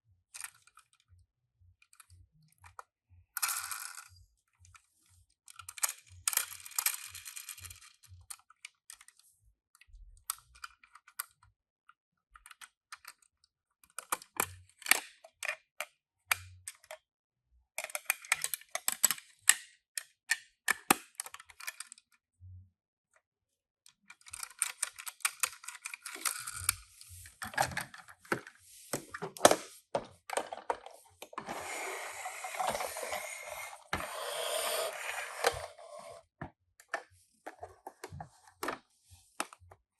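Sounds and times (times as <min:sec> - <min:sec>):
clicks and taps of toy cars: 0:00.4 - 0:01.1, 0:05.4 - 0:09.2, 0:09.8 - 0:11.5, 0:12.3 - 0:17.0, 0:17.8 - 0:22.2, 0:23.9 - 0:26.8.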